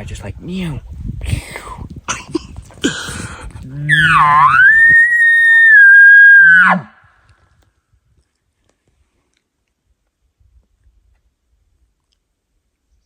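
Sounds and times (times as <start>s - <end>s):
elk bugling: 3.6s - 7.0s.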